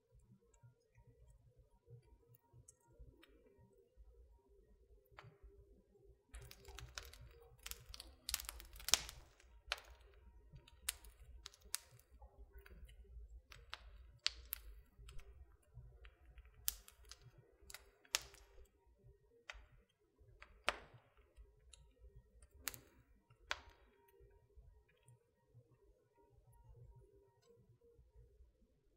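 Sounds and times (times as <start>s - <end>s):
wood fire crackling: 6.3s - 25.1s.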